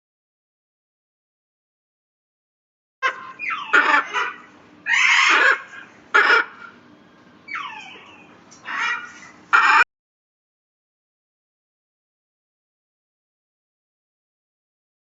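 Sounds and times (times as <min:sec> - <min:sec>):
parrots squawking: 0:03.0 - 0:09.9.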